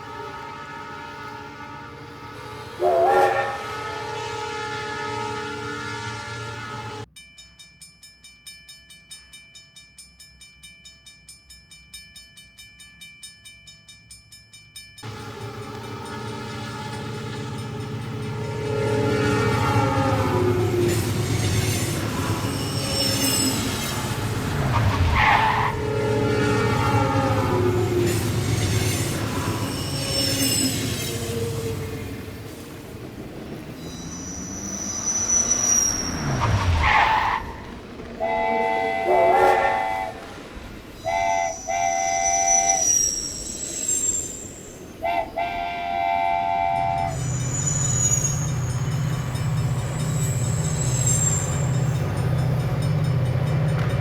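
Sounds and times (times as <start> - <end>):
train horn blasts: 0.0 - 7.1, 15.0 - 32.5, 36.2 - 43.2, 45.0 - 49.4
train rumbling past: 0.0 - 7.1, 15.0 - 54.0.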